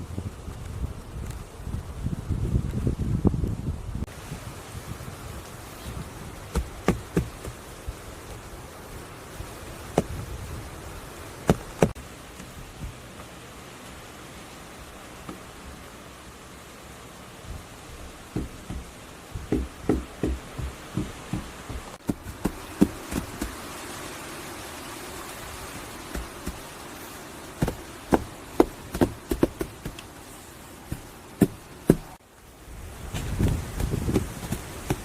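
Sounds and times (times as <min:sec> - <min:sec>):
outdoor hiss: 0:00.0 - 0:35.0
wood knocks and taps: 0:18.3 - 0:23.6.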